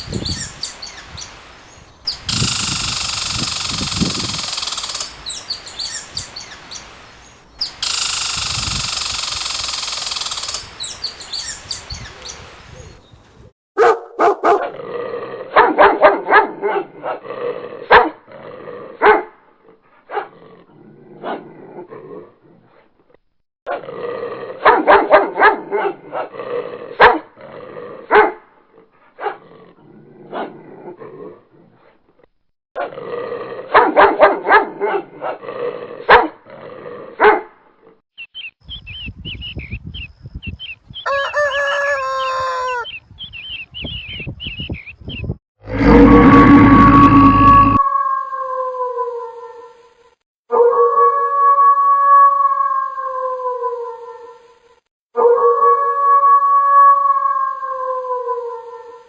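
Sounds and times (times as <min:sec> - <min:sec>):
dog barking: 0:13.8 - 0:14.8, 0:15.5 - 0:17.2, 0:17.9 - 0:18.2, 0:19.0 - 0:19.3, 0:20.1 - 0:20.3, 0:24.6 - 0:26.3, 0:27.0 - 0:27.2, 0:28.1 - 0:28.4, 0:29.2 - 0:29.4, 0:33.7 - 0:35.4, 0:36.1 - 0:36.4, 0:37.2 - 0:37.5.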